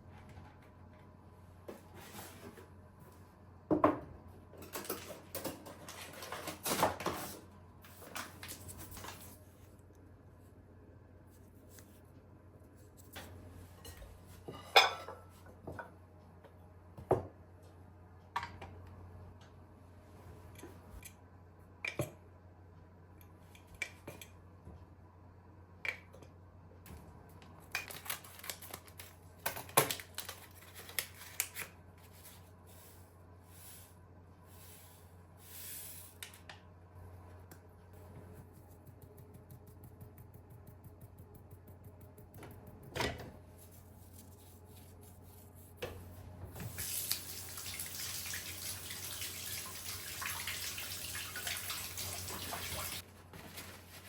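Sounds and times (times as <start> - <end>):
dishes and utensils clattering: 13.8 - 15.4.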